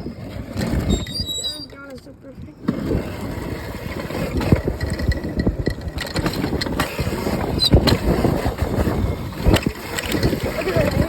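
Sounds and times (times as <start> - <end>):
wind noise rushing: 2.7 - 11.0
knocks and rattles: 4.4 - 11.0.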